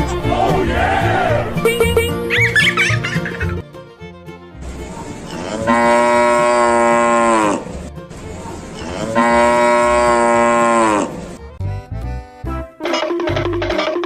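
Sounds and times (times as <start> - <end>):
cow mooing: 5.3 - 7.8, 8.8 - 11.2.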